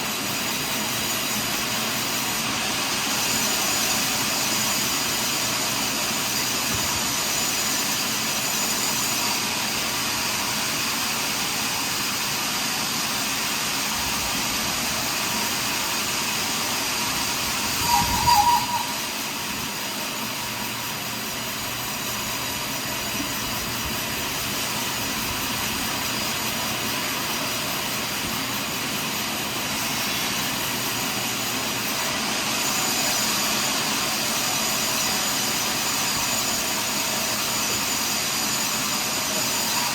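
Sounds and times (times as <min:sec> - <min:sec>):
brief high-pitched sound: 0:17.7 - 0:19.4
sawmill sawing log: 0:22.1 - 0:39.9.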